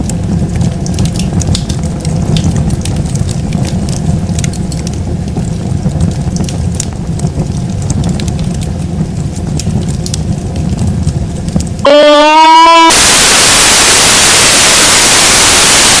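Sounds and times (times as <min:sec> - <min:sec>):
campfire crackling: 0:00.0 - 0:12.8
loud static hiss: 0:11.2 - 0:16.0
loud pitched tone: 0:11.9 - 0:16.0.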